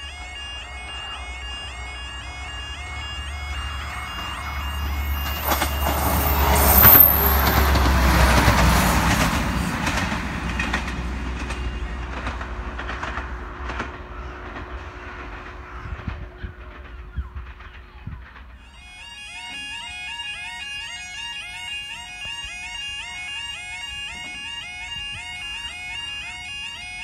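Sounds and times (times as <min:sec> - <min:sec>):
level crossing alarm warbling: 0:00.0 - 0:09.2, 0:18.6 - 0:27.0
steady tone: 0:00.0 - 0:16.2
diesel train passing: 0:00.0 - 0:21.8
wheels clicking over rail joints: 0:02.9 - 0:18.9.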